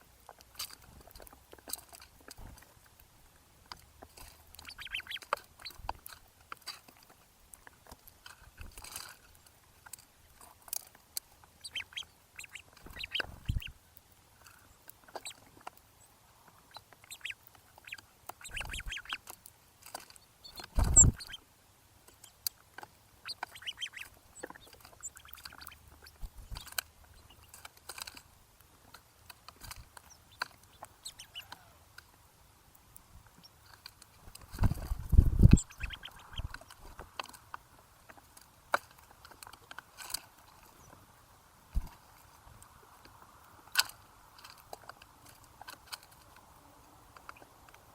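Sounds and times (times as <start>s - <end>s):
birds chirping: 3.7s - 6.7s, 11.3s - 21.5s, 22.1s - 28.2s, 29.6s - 32.2s, 33.0s - 37.4s.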